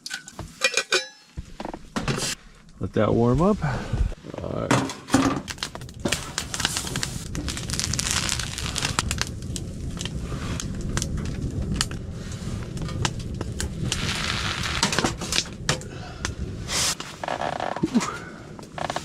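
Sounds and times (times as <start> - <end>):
food crackling and popping: 4.5 - 19.0.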